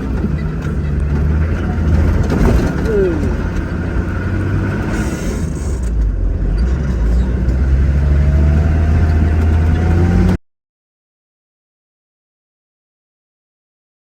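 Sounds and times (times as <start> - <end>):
vehicle engine rumbling: 0.0 - 10.4.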